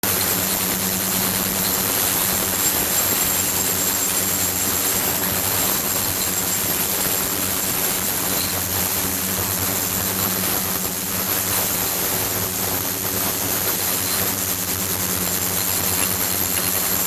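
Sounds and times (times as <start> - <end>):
high constant whine: 0.0 - 17.0.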